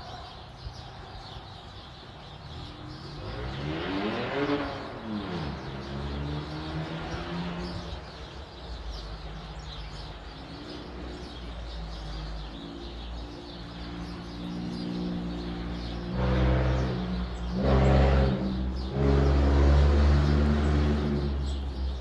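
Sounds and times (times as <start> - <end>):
small birds chirping: 0.0 - 22.0
vehicle engine accelerating: 2.6 - 8.2, 12.3 - 22.0.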